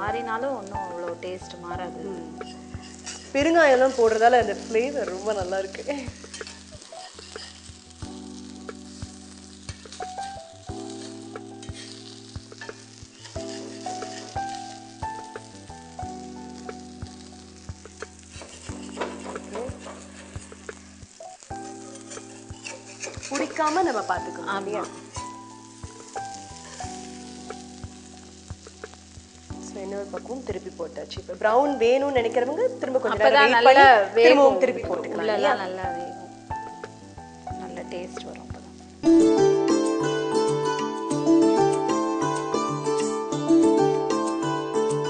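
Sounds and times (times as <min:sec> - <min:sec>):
patties sizzling in oil: 0:00.0 - 0:45.0
soft background music chords: 0:00.0 - 0:45.0
metal spatula on pan: 0:02.1 - 0:35.4.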